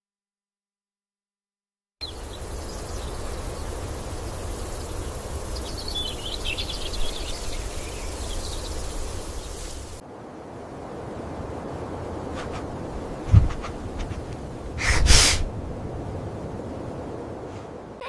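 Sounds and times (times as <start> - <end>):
steady hiss: 2.0 - 15.6.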